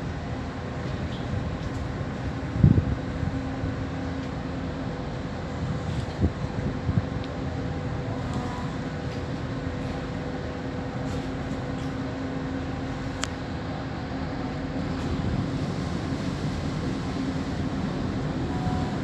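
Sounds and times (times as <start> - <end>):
ship engines droning: 0.0 - 19.0.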